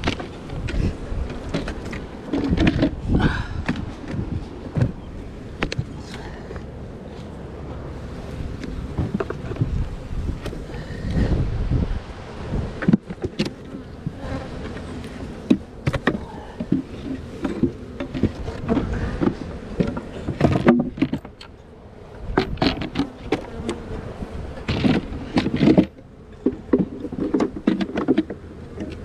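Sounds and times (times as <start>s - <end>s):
hive equipment clicking and knocking: 0.0s - 3.0s, 15.4s - 21.5s, 24.6s - 29.0s
honeybees buzzing: 0.0s - 29.0s.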